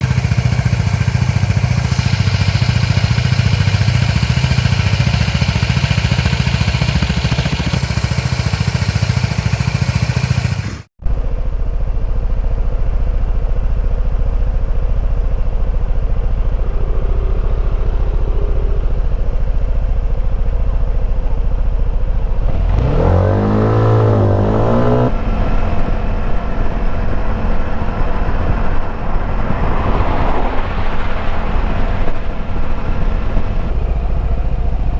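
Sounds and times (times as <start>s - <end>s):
scooter engine running: 0.0s - 29.4s, 33.7s - 34.9s.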